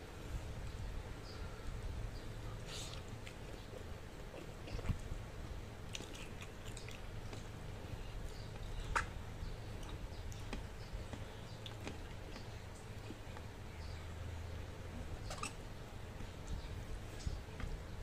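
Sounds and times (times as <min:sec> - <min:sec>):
person chewing food: 0:05.8 - 0:13.6
wet mouth clicks and smacks: 0:05.9 - 0:07.6, 0:08.5 - 0:09.2.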